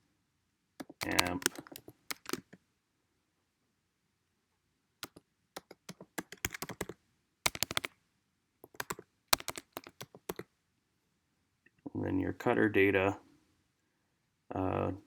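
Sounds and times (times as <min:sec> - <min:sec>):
computer keyboard typing: 0:00.8 - 0:02.6, 0:05.0 - 0:07.9, 0:08.6 - 0:10.5.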